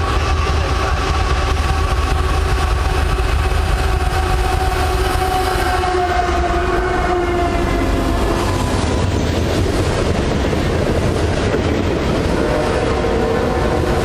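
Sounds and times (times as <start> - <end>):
steady horn tones: 0.0 - 8.7, 12.3 - 14.0
diesel locomotives rumbling: 0.0 - 14.0.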